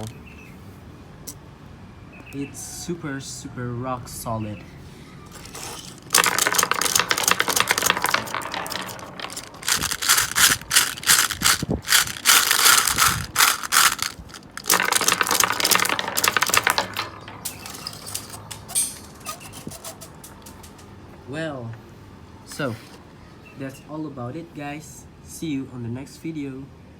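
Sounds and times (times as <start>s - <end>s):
toy marbles rattling: 5.3s - 18.5s.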